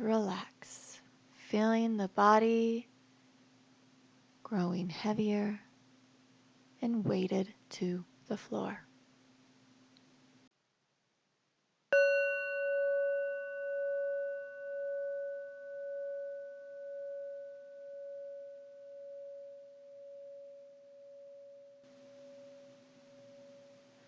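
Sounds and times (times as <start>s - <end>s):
singing bowl ringing: 12.0s - 24.0s.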